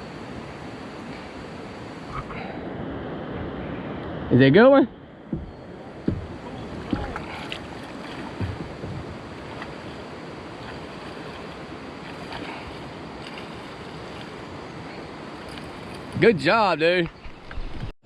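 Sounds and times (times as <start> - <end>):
water: 0.0 - 17.9
wind: 0.0 - 18.0
soft low knocks: 4.9 - 10.0.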